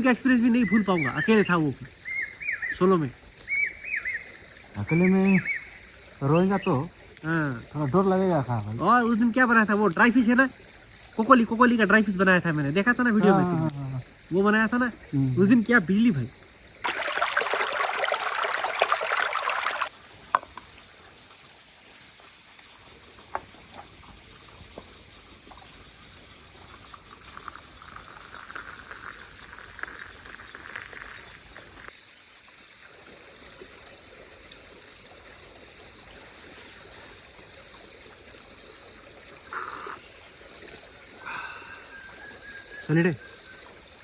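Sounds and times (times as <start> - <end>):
high insect drone: 0.0 - 44.0
water trickling: 0.0 - 44.0
liquid pouring: 16.8 - 19.9, 26.7 - 31.9.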